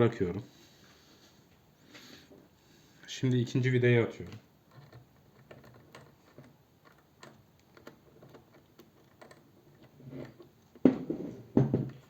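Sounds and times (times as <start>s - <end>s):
small screw clicks and ticks: 4.2s - 10.8s
knock and rattle: 10.2s - 12.0s.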